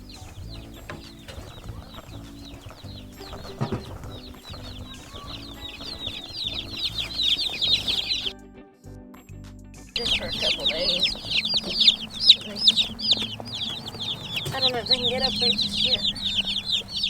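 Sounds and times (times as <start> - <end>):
chicks peeping: 0.0 - 8.3, 10.0 - 17.0
background music with low notes: 0.0 - 17.0.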